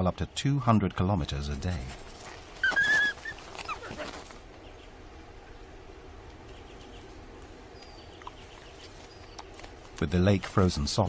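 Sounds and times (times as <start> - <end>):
faint outdoor ambience: 0.0 - 11.0
wolves whining: 2.5 - 4.4.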